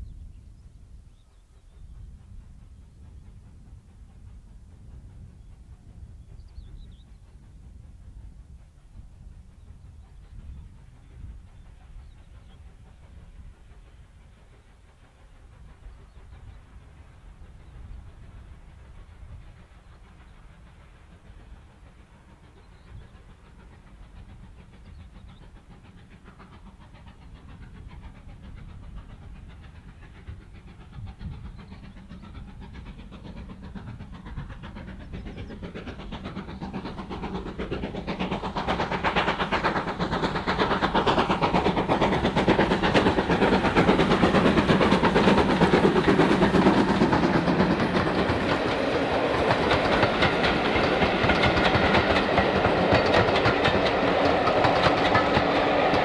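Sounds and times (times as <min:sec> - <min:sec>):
train approaching: 0:00.0 - 0:56.0
wheels rattling on rail joints: 0:15.6 - 0:56.0.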